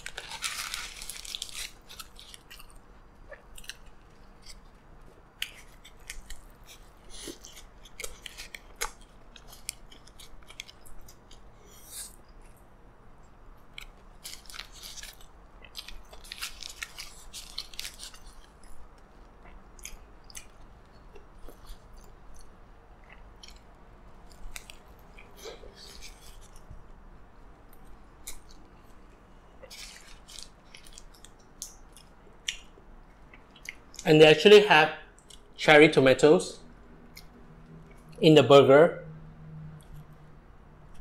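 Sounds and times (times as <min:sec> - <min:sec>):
person biting and chewing: 0:00.0 - 0:12.6, 0:13.6 - 0:26.7, 0:29.6 - 0:34.0.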